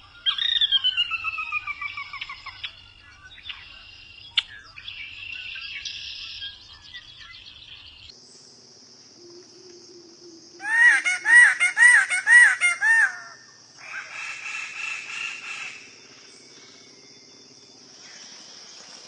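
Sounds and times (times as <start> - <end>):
birds chirping: 0.0 - 8.5
high insect drone: 0.0 - 19.0
insects buzzing: 0.0 - 19.0
bird repeated arching calls: 10.6 - 16.0.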